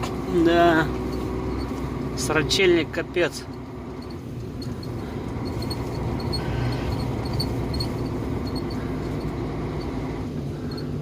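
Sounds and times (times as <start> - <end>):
diesel truck engine running: 0.0 - 11.0
faint high-pitched squeaks: 4.0 - 10.0.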